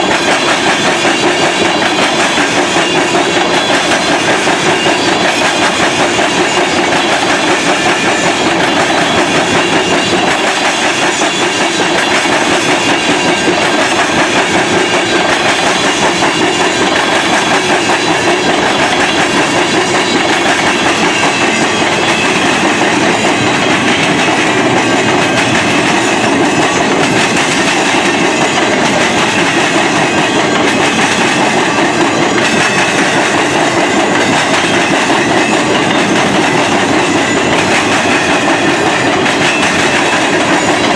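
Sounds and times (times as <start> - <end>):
freight train wheels rumbling on rails: 0.0 - 40.9.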